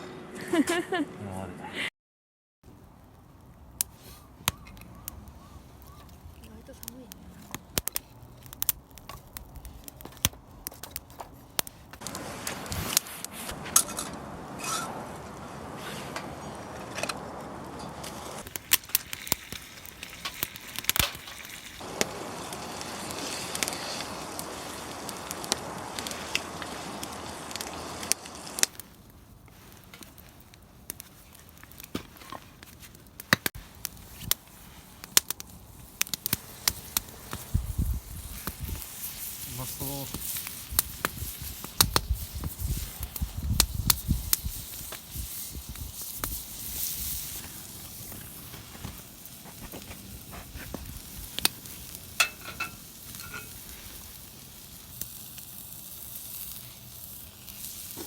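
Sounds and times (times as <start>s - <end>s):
wood fire crackling and popping: 2.7s - 58.0s
steady hiss: 11.6s - 58.0s.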